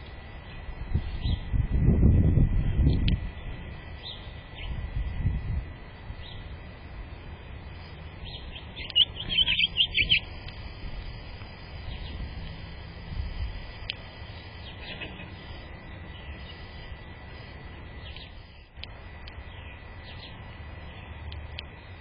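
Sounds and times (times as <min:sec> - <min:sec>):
steady low rumble: 0:00.0 - 0:22.0
small bird chirping: 0:00.4 - 0:01.5, 0:02.6 - 0:04.8, 0:06.2 - 0:06.5, 0:07.8 - 0:10.6, 0:11.8 - 0:12.3, 0:13.8 - 0:16.8, 0:17.9 - 0:18.7, 0:19.3 - 0:21.2.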